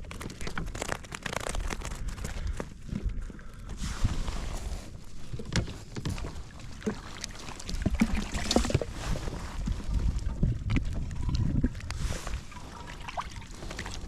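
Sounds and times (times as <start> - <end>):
wind: 0.0 - 14.0
low rumble of water: 2.8 - 14.0
knocks and clicks against hull: 5.2 - 12.0.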